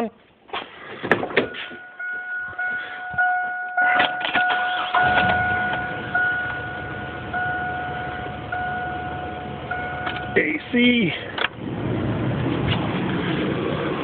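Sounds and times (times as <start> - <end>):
car engine cranking and idling: 0.6 - 14.0
high-pitched tone: 1.4 - 10.8.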